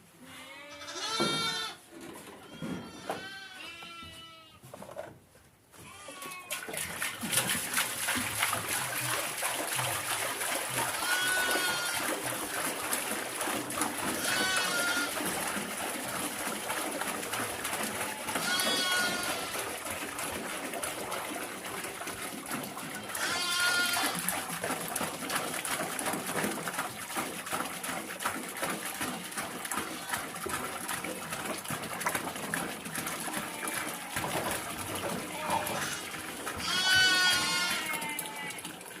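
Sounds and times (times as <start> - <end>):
sheep and goats bleating: 0.2 - 1.8, 2.4 - 4.6, 5.8 - 6.6, 11.0 - 12.1, 14.1 - 15.2, 18.2 - 19.6, 23.0 - 24.2, 35.2 - 38.7
small rustles and knocks: 1.1 - 7.5.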